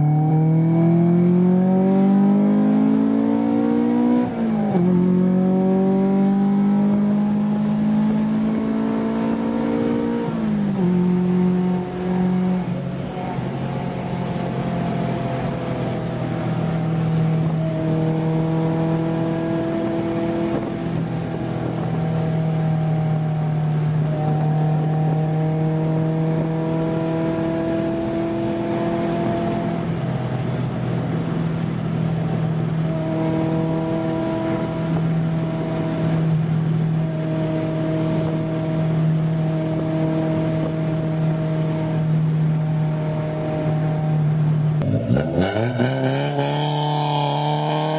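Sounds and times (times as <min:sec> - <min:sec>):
car engine through exhaust: 0:00.0 - 0:47.9.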